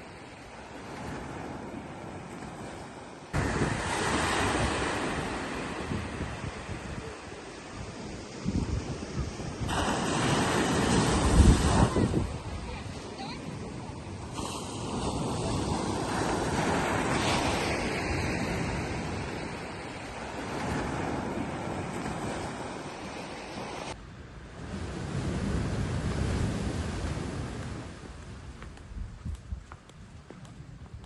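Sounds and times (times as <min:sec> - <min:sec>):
sea waves washing onto beach: 0:00.0 - 0:28.8
wind buffeting microphone: 0:00.6 - 0:31.0.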